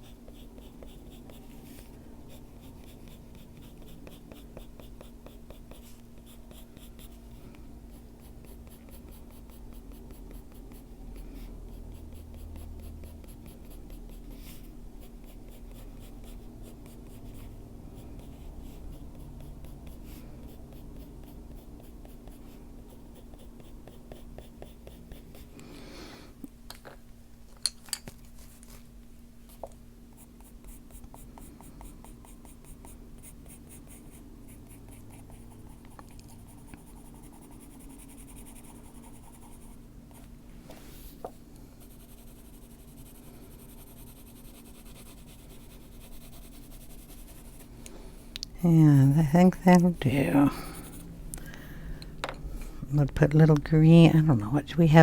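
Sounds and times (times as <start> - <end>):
colored pencil scratching on paper: 0.0 - 25.5, 30.1 - 40.3, 41.8 - 47.7, 48.6 - 51.1.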